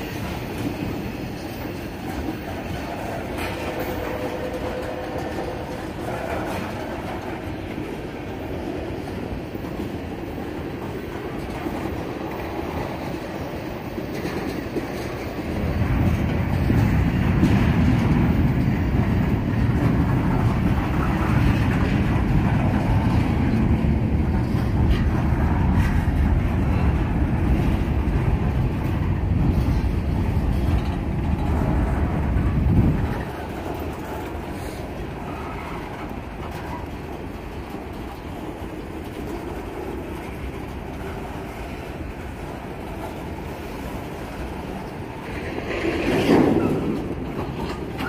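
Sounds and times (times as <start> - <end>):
freight train rolling past: 0.0 - 48.0.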